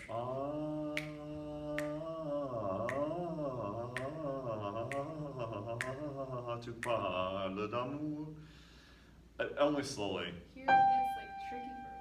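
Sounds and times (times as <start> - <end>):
person singing opera: 0.0 - 8.4.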